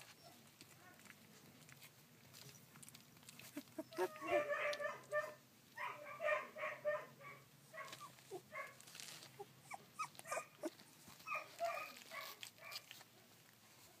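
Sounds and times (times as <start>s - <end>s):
puppies whimpering and squeaking: 0.0s - 0.7s, 2.4s - 4.8s, 7.8s - 12.9s.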